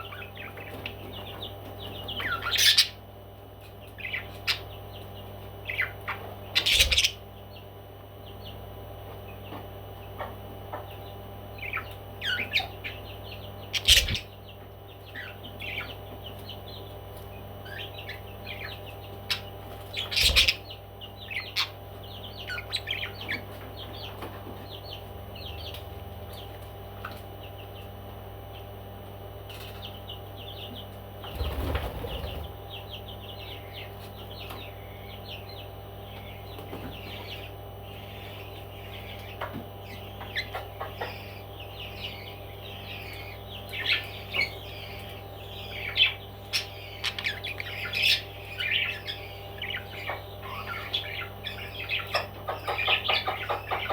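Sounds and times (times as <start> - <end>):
parrots chirping: 0.0 - 3.0, 4.0 - 4.8, 5.6 - 7.2, 11.6 - 16.0, 17.6 - 25.8, 30.4 - 53.9
steady low hum: 0.0 - 53.9.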